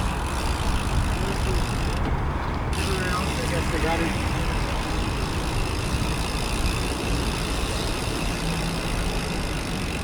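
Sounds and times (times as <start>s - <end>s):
wind rumbling on microphone: 0.0s - 2.9s, 4.2s - 8.3s
bicycle road noise: 0.0s - 10.0s.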